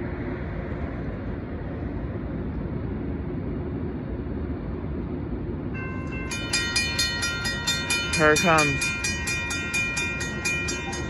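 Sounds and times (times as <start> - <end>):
freight train rumble: 0.0 - 11.0
crossing bell ringing: 5.8 - 11.0.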